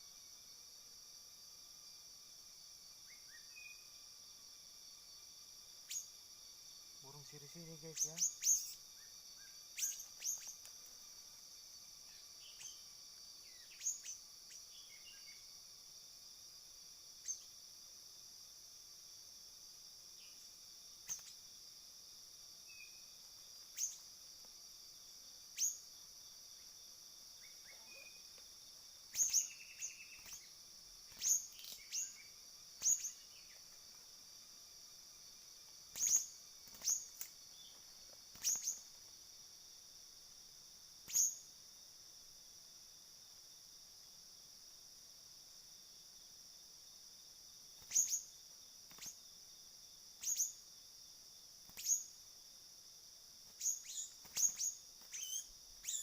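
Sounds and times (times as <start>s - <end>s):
high-pitched insect drone: 4.9s - 15.6s, 29.0s - 34.0s, 35.2s - 39.1s.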